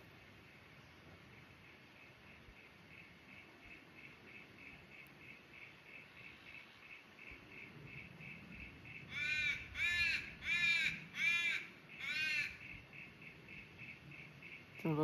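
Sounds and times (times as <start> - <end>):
crow cawing: 9.1 - 12.7.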